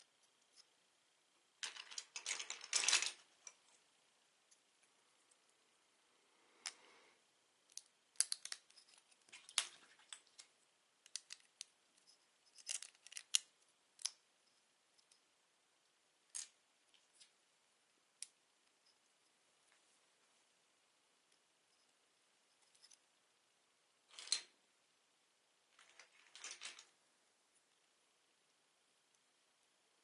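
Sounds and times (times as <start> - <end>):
plastic bricks clicking together: 7.7 - 10.4, 11.0 - 11.7, 12.6 - 14.2.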